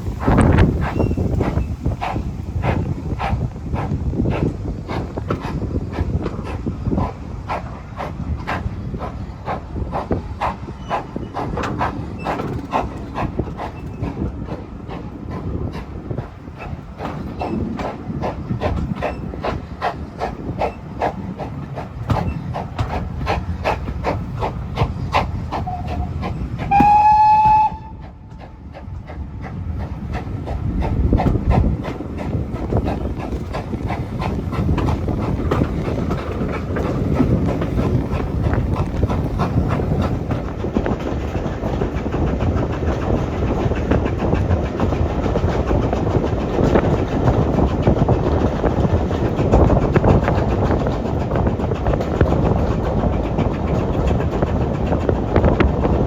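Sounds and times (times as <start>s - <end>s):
steam train chuffing: 0.0s - 56.0s
steam locomotive whistle: 25.6s - 28.2s.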